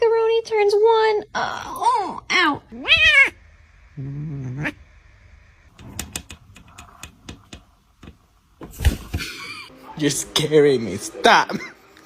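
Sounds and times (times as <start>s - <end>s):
cat growling yowl: 1.4s - 3.4s, 4.0s - 4.8s.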